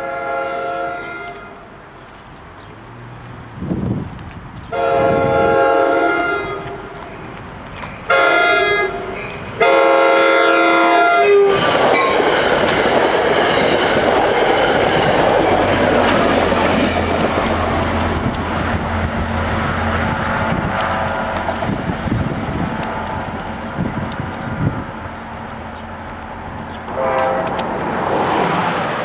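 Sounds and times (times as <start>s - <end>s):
locomotive horn blast: 0.0s - 1.6s, 4.7s - 7.0s, 8.1s - 12.2s, 26.9s - 27.9s
train rolling rumble: 0.0s - 29.0s
locomotive engine drone: 6.5s - 29.0s.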